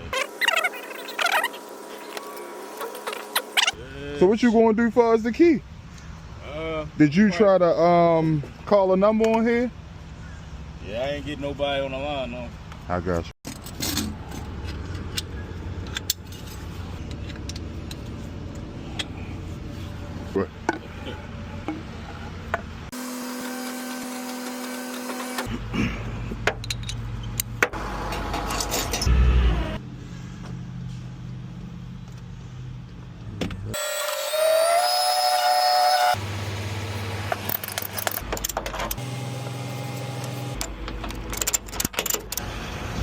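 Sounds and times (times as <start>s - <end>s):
engine hum: 13.5s - 23.0s, 24.2s - 33.8s, 35.9s - 43.0s
rising whine: 39.0s - 41.2s.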